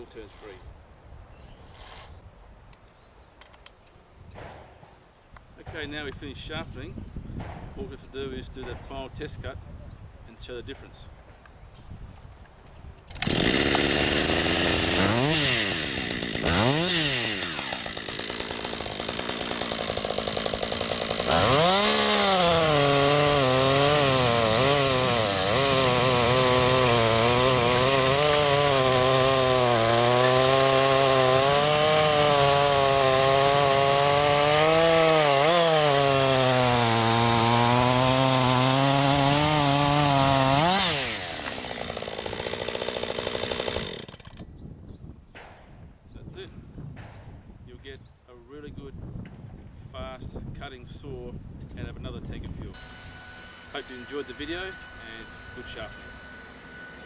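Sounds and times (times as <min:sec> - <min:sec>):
chainsaw cutting log: 0:01.7 - 0:02.2, 0:13.1 - 0:44.5, 0:52.6 - 0:57.0.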